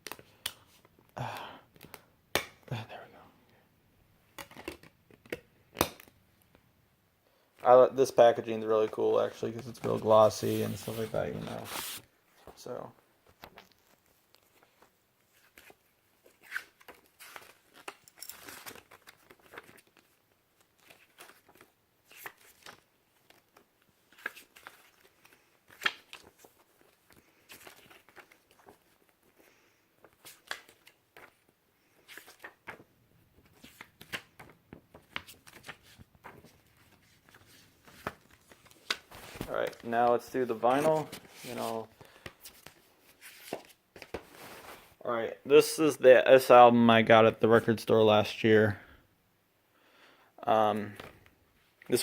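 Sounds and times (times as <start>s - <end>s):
plastic and paper crinkling: 9.1s - 12.1s, 13.5s - 29.4s, 30.0s - 45.0s.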